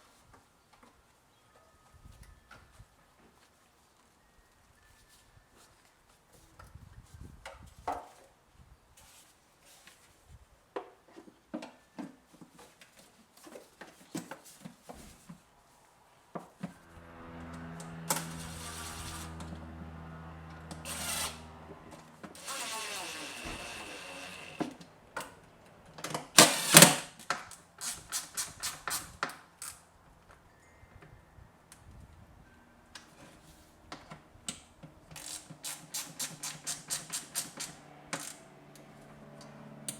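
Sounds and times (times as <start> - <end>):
small power tool motor: 16.8 - 24.9, 26.4 - 27.1, 35.1 - 39.0
tools clicking and knocking: 35.1 - 38.4.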